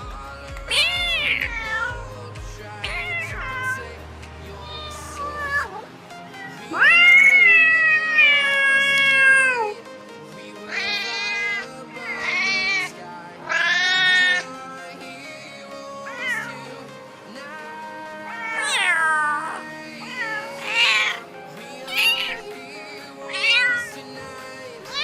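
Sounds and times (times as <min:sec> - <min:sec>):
soft background music: 0:00.0 - 0:25.0
cats meowing: 0:00.6 - 0:02.1, 0:02.8 - 0:03.9, 0:04.6 - 0:05.8, 0:06.4 - 0:09.8, 0:10.6 - 0:14.6, 0:16.0 - 0:16.8, 0:18.1 - 0:25.0.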